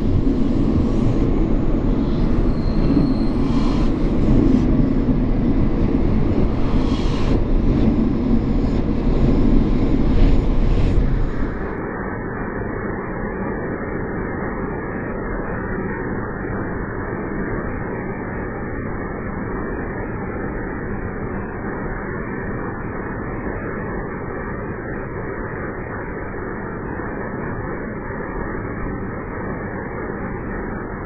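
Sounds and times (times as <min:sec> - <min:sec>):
electric train passing: 0:00.0 - 0:11.8.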